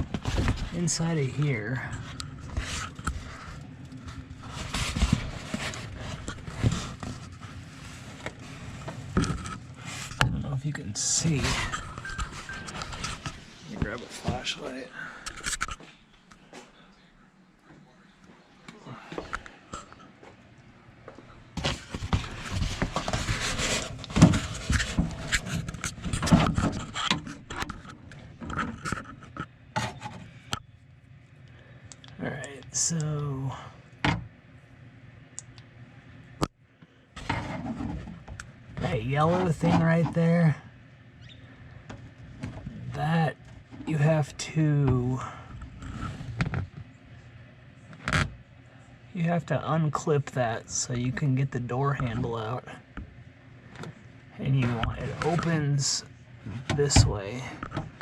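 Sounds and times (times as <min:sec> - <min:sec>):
objects rubbing and scraping: 0:00.0 - 0:15.8, 0:21.6 - 0:30.5, 0:37.2 - 0:40.5, 0:45.6 - 0:46.8, 0:54.4 - 0:55.8.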